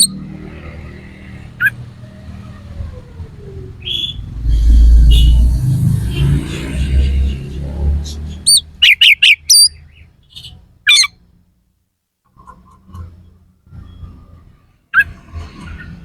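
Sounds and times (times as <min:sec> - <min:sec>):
low rumble: 0:04.2 - 0:08.0.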